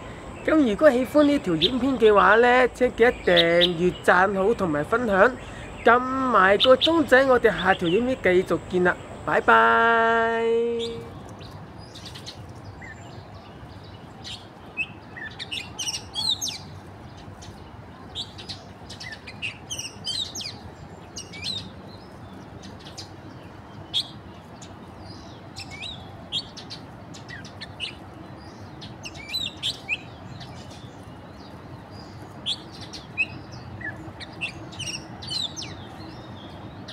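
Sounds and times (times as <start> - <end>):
birds chirping: 0.0 - 36.9
low background noise: 0.0 - 36.9.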